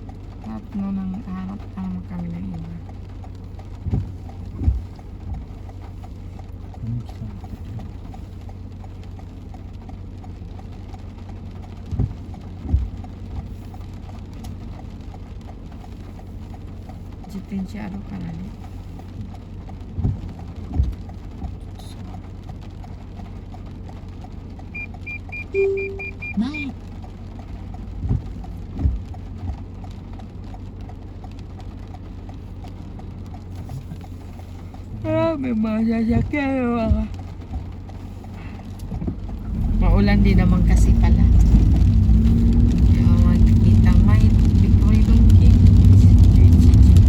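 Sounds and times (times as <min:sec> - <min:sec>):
faint ticking: 0:00.0 - 0:47.0
road rumble in car cabin: 0:00.0 - 0:47.0
short low thumps: 0:03.7 - 0:05.6, 0:11.8 - 0:13.5, 0:28.0 - 0:29.2.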